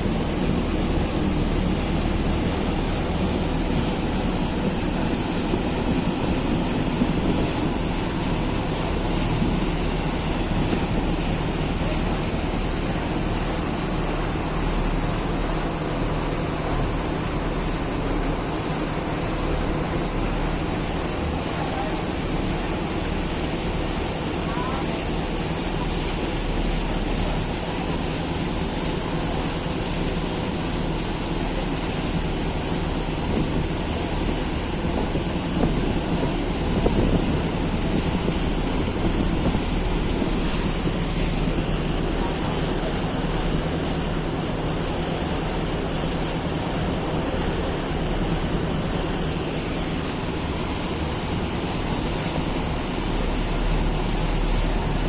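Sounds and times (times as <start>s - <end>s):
ferry engine drone: 0.0s - 55.0s
rushing water: 0.0s - 55.0s
wind buffeting microphone: 0.1s - 13.4s, 33.2s - 44.0s.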